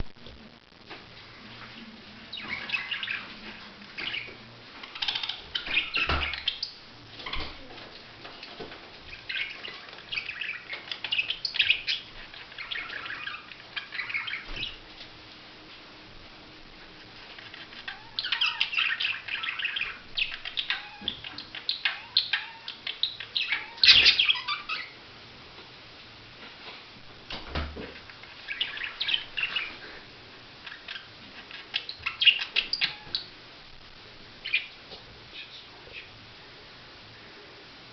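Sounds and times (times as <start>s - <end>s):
budgerigars chirping: 2.3s - 3.3s, 4.0s - 7.5s, 9.1s - 14.8s, 17.4s - 25.0s, 28.4s - 29.8s, 30.6s - 33.3s, 34.4s - 34.7s.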